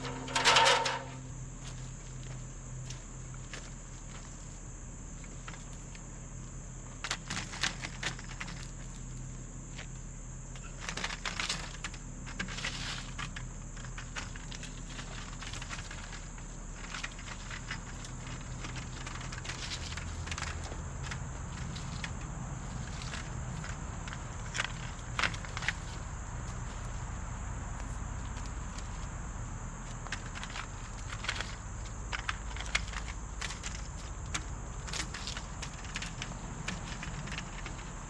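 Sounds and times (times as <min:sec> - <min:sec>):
clicks and rustling handling noises: 0:00.0 - 0:01.8, 0:30.0 - 0:38.0
steady electrical hum: 0:00.0 - 0:38.0.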